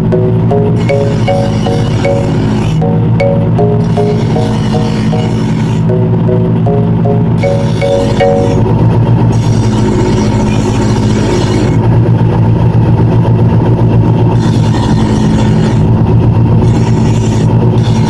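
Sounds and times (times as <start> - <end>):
grinder motor humming: 0.0 - 11.9
knife grinding on wheel: 0.7 - 2.8, 3.8 - 5.9, 14.4 - 15.9, 16.6 - 18.0.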